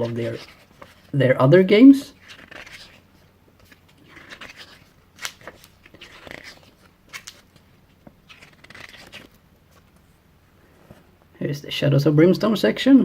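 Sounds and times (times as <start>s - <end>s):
catalog pages turning: 0.0s - 1.2s, 2.0s - 10.1s.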